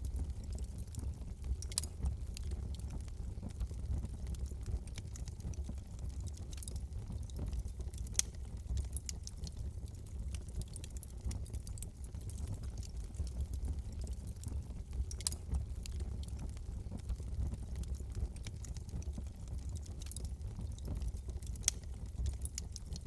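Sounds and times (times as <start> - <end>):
low steady rumble: 0.0 - 23.0
wood fire crackling: 0.0 - 23.0.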